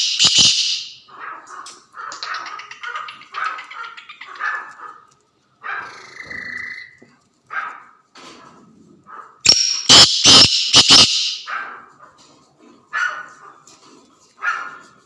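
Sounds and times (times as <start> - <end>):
bird giving harsh grating calls: 0.0 - 1.1, 5.7 - 7.0, 9.5 - 11.6.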